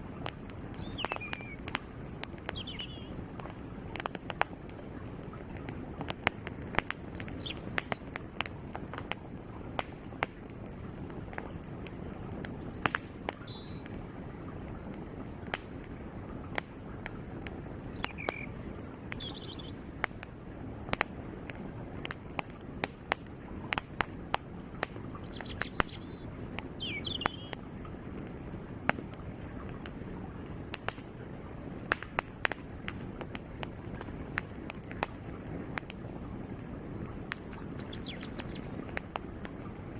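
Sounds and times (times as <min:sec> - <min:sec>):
flowing creek: 0:00.0 - 0:39.9
wood fire crackling and popping: 0:00.0 - 0:39.9
bird chirps: 0:00.8 - 0:03.2, 0:07.1 - 0:08.0, 0:12.6 - 0:13.9, 0:17.9 - 0:19.8, 0:25.2 - 0:27.6, 0:37.0 - 0:38.9.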